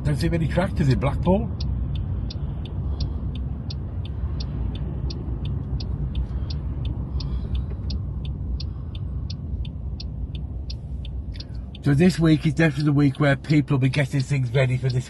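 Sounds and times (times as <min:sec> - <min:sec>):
car engine and road rumble: 0:00.0 - 0:15.0
turn signal ticking: 0:00.0 - 0:15.0.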